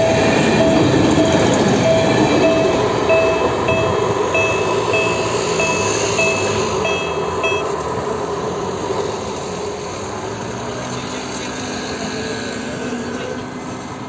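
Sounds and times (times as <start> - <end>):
level crossing bell ringing: 0.0 - 7.8
train engine and rail rumble: 0.0 - 14.0.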